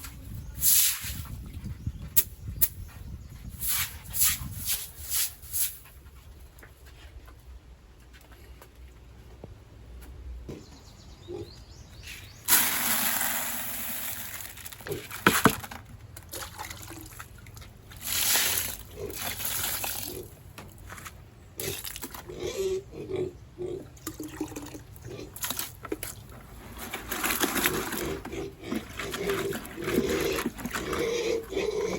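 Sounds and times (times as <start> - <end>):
water pouring and splashing: 12.5 - 14.8, 16.2 - 20.3.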